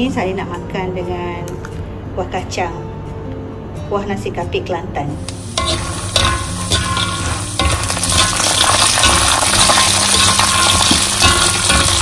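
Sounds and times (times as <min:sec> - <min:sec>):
peanuts sizzling in oil: 0:05.3 - 0:12.0
metal spatula scraping pan: 0:05.5 - 0:12.0.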